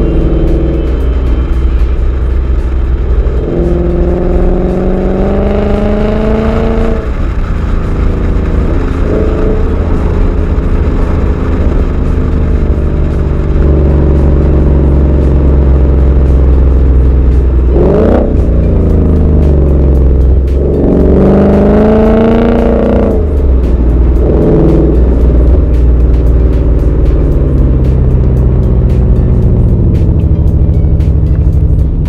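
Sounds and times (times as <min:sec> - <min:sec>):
car engine accelerating and revving: 0:00.0 - 0:32.0.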